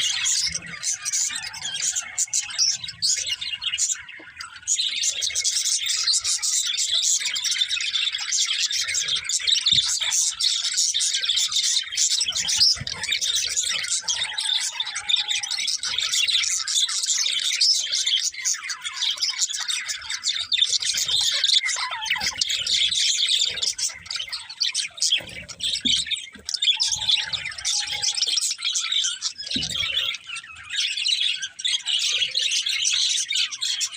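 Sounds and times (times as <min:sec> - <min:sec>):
budgerigars chirping and chattering: 0:00.0 - 0:33.9
budgerigar squawk: 0:21.2 - 0:24.5.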